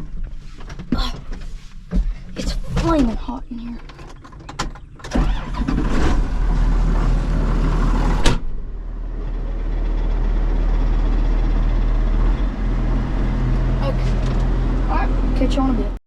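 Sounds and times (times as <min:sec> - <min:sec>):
tractor diesel engine running: 0:00.0 - 0:16.0
sharp thunk: 0:08.2 - 0:08.6.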